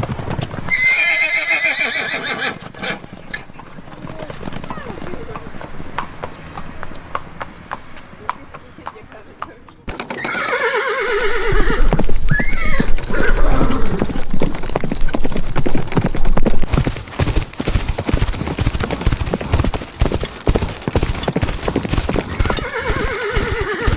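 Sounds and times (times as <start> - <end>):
horse hooves clattering: 0.0 - 23.9
horse whinnying: 0.7 - 3.4, 10.1 - 14.5, 22.0 - 23.9.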